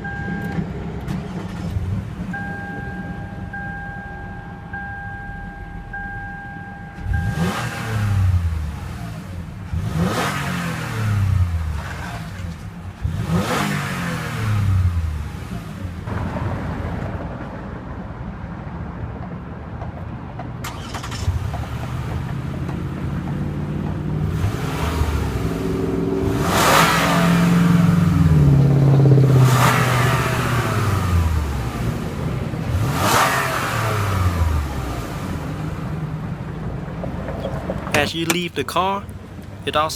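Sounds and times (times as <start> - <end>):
car engine revving: 7.0 - 15.8.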